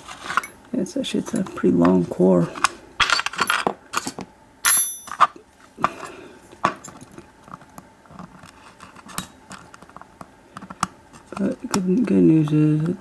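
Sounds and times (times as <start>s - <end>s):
high metallic ring: 4.6s - 5.3s.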